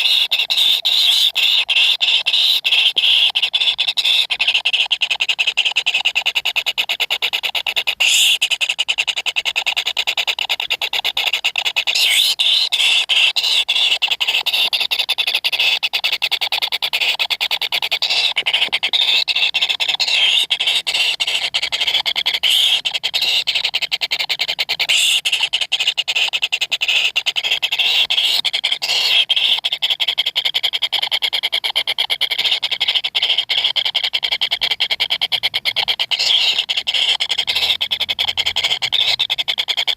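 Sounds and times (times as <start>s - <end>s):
nestlings rasping calls: 0.0s - 5.6s, 8.0s - 8.7s, 11.2s - 15.8s, 16.8s - 30.1s, 32.4s - 39.9s.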